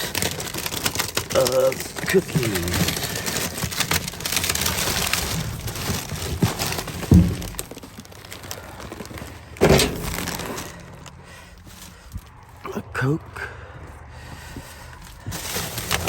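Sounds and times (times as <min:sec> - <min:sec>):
trash rustling and clattering: 0:00.0 - 0:12.6, 0:14.6 - 0:16.0
loud thunk: 0:07.1 - 0:07.6, 0:09.6 - 0:10.2.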